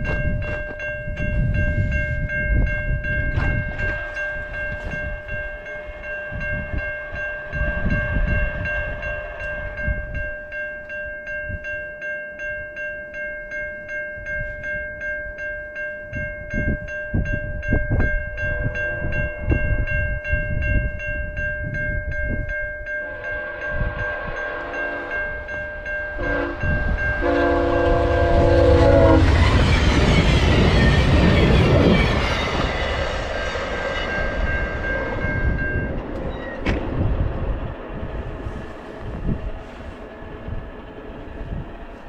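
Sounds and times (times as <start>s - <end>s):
train rushing past: 0.0s - 10.7s, 17.2s - 42.0s
level-crossing warning bells: 0.0s - 42.0s
train horn blasts: 3.7s - 10.2s, 23.0s - 30.7s.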